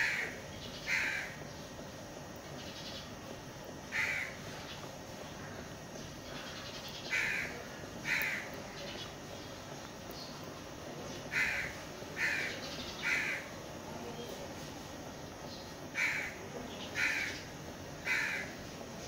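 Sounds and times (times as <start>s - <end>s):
low background noise: 0.0s - 19.0s
bird calling: 3.9s - 9.5s, 11.1s - 13.5s, 15.5s - 18.6s.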